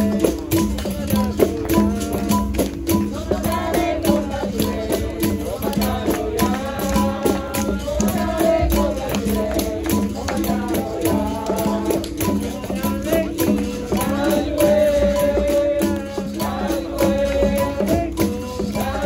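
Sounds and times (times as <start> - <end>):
berimbaus playing rhythm: 0.0 - 19.0
group singing: 0.0 - 19.0
rattles and hand percussion: 0.0 - 19.0.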